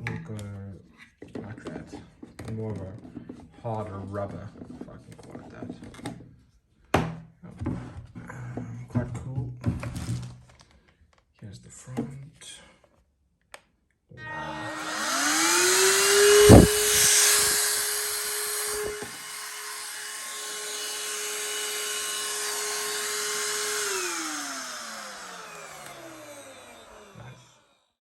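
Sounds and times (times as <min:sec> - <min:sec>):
handheld vacuum motor whine: 0:14.2 - 0:27.9.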